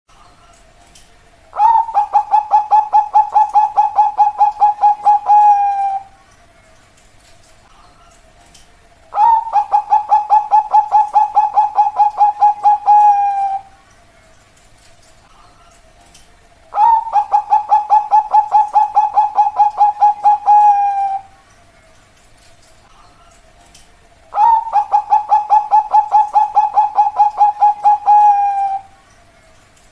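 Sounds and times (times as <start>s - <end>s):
dove cooing: 1.5s - 6.2s, 9.1s - 13.8s, 16.7s - 21.4s, 24.3s - 29.0s.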